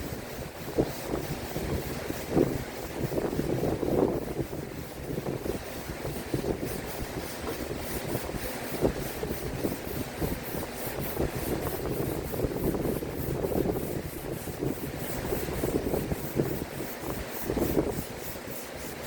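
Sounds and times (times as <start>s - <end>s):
wood being sanded: 0.0s - 19.0s.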